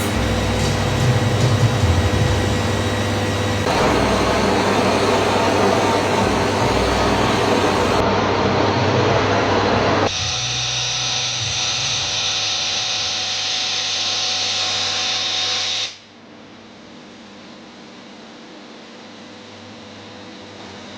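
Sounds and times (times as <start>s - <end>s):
welding machine grinding and whining: 0.0s - 8.0s.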